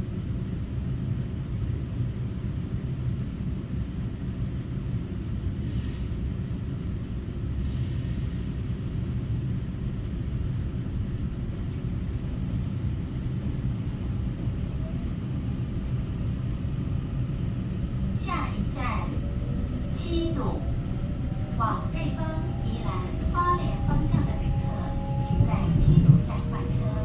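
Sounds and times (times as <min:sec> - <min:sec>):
train running low rumble: 0:00.0 - 0:27.0.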